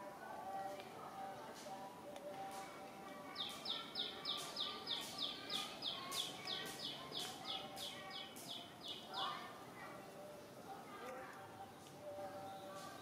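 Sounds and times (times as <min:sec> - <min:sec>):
bird chirping: 0:03.3 - 0:09.4.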